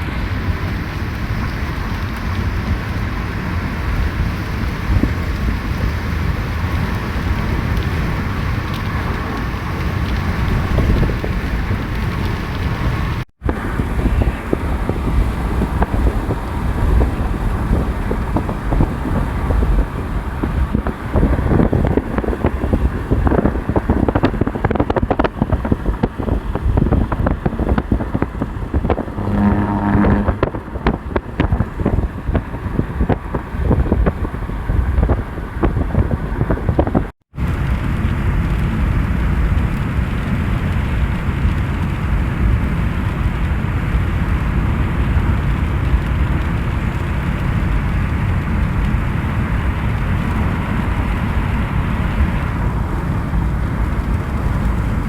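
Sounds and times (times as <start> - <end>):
car wind and road noise: 0.0 - 55.0
short low tone: 29.0 - 30.8.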